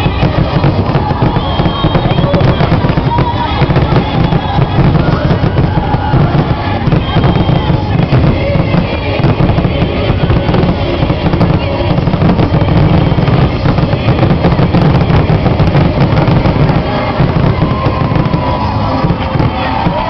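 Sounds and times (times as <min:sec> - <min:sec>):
fireworks booming and crackling: 0:00.0 - 0:20.0.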